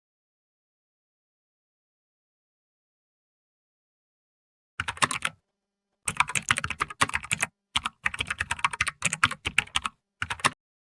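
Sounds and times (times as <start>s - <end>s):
computer keyboard typing: 4.8s - 5.4s, 6.1s - 10.6s.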